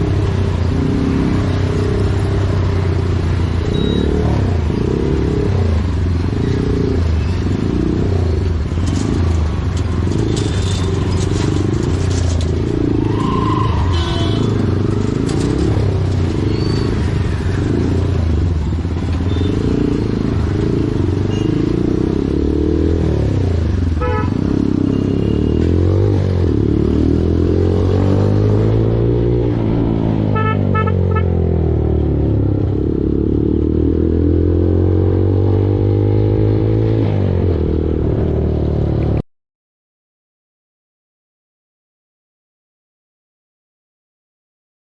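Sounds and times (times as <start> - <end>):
short beeps: 3.6 - 4.3.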